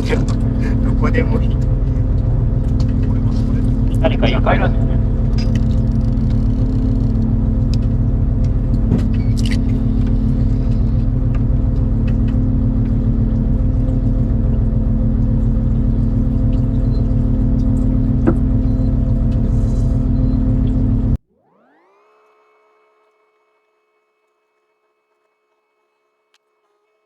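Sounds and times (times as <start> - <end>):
boat engine rumbling: 0.0 - 21.2.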